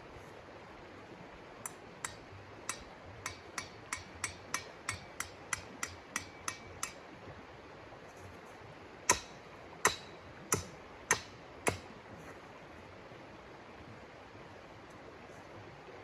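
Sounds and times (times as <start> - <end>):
sharp knocks: 9.1 - 11.8.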